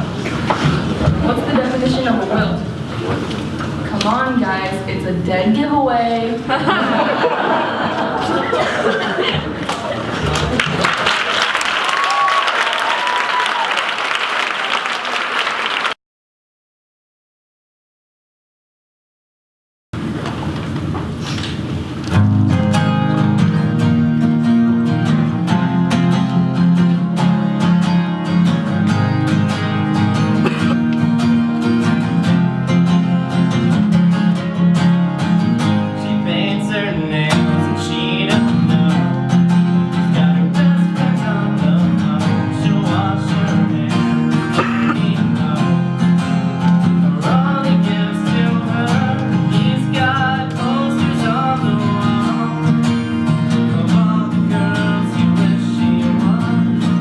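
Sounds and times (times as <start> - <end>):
acoustic guitar strumming: 20.0 - 57.0.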